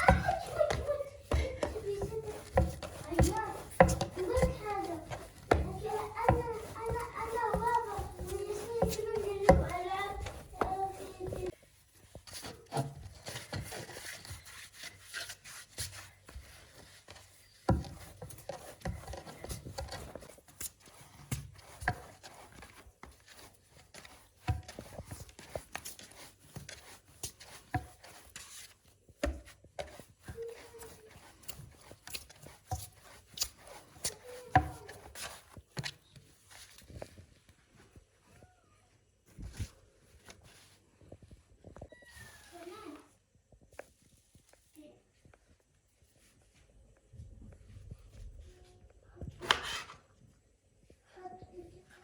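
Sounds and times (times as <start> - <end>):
food preparation knocks and taps: 0.0 - 11.6, 17.6 - 20.4, 29.1 - 36.0.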